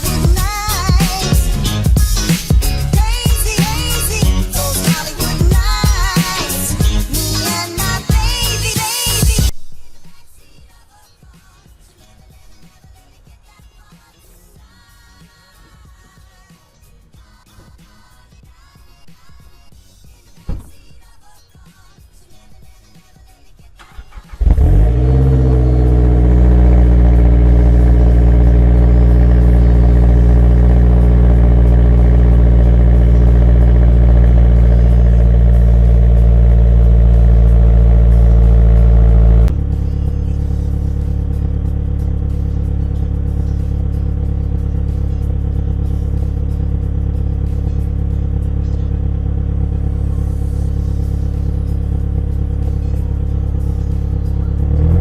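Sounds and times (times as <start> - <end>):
car engine starting and idling: 0.0 - 10.6, 23.5 - 55.0.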